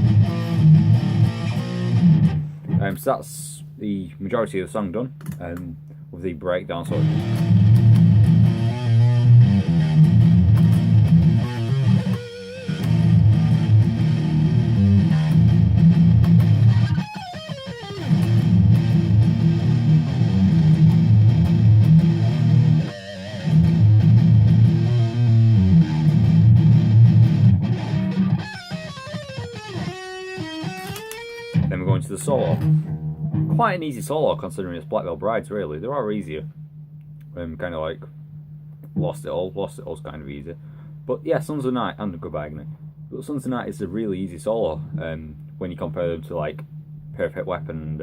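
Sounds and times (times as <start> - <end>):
electric guitar heavy riff: 0.0 - 3.6, 6.8 - 35.4.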